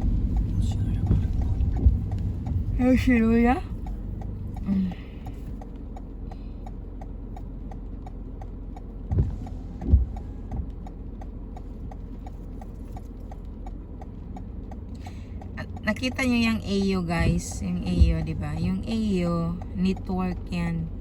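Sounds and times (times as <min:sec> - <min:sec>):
short low thumps: 0:00.0 - 0:07.8, 0:08.7 - 0:12.3, 0:15.1 - 0:21.0
car cabin rumble: 0:00.0 - 0:21.0
turn signal ticking: 0:00.0 - 0:21.0.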